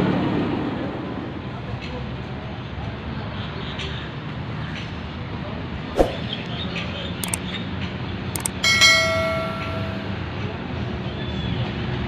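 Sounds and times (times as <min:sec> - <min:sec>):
sharp knock: 0:06.0 - 0:06.3
light clicks: 0:08.4 - 0:08.6.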